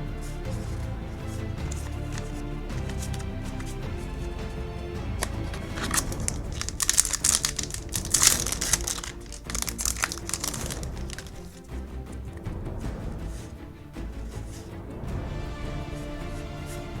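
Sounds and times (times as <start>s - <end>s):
background music: 0.0s - 17.0s
foil wrapper crinkling: 5.2s - 11.6s.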